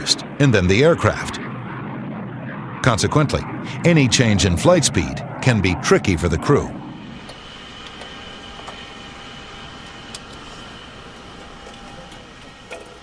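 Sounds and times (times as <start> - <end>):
aircraft engine drone: 0.0 - 13.0
high whine: 0.0 - 13.0.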